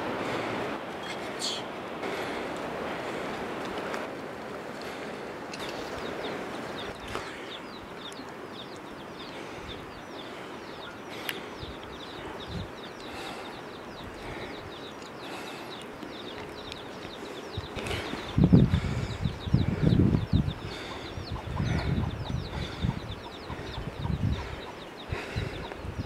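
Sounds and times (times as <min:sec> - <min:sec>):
steady background hiss: 0:00.0 - 0:18.5
small birds chirping: 0:00.2 - 0:26.0.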